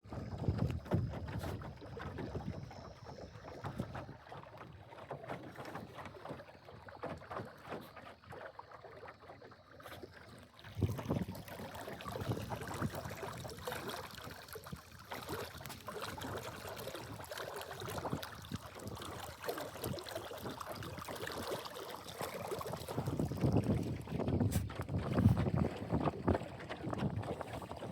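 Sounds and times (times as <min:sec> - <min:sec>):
water splashing against hull: 0:00.0 - 0:27.9
wind buffeting microphone: 0:00.1 - 0:03.0, 0:10.7 - 0:13.7, 0:22.4 - 0:27.9.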